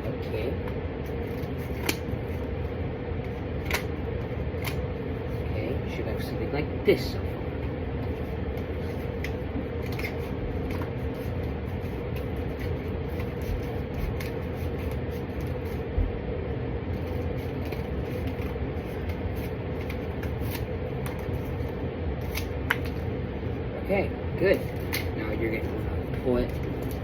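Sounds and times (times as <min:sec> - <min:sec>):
low background hum: 0:00.0 - 0:27.0
card clicking and rustling: 0:01.1 - 0:02.5, 0:03.2 - 0:04.8, 0:08.0 - 0:15.9, 0:17.0 - 0:23.1.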